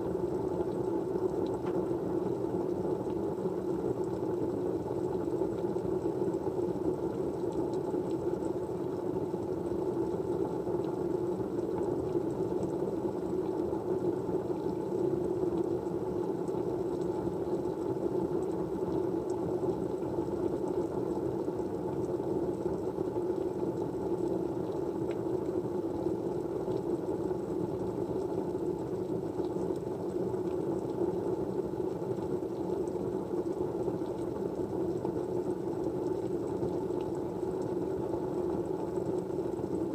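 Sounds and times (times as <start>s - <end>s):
white noise hiss: 0.0s - 39.9s
faint light ticks: 1.4s - 1.8s.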